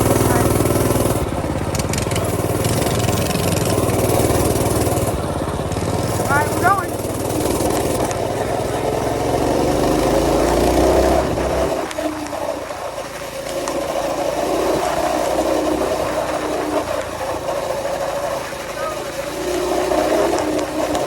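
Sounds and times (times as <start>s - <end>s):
minibike engine running: 0.0s - 21.0s.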